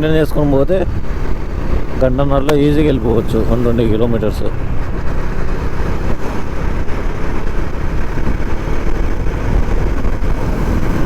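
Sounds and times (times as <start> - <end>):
motorcycle engine: 0.0 - 11.0.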